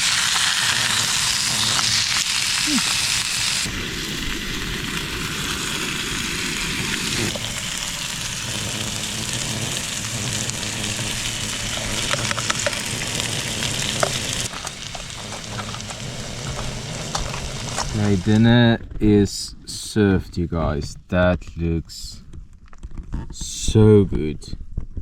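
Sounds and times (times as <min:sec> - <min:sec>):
fish sizzling in a pan: 0:00.0 - 0:18.3.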